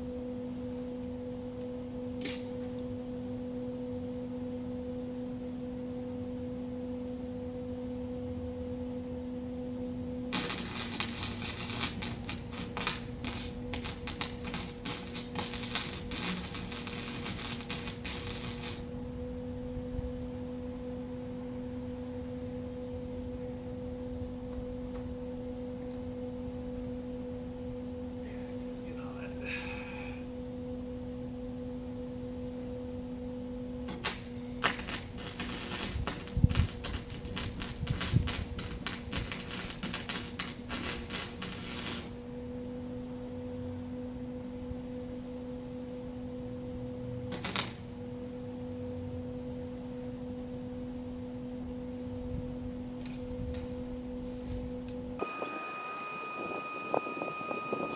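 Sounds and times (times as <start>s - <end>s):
steady electrical hum: 0.0s - 57.9s
arc welding crackle: 1.6s - 2.8s, 10.3s - 19.2s, 33.8s - 42.4s, 47.0s - 48.1s, 52.9s - 57.9s.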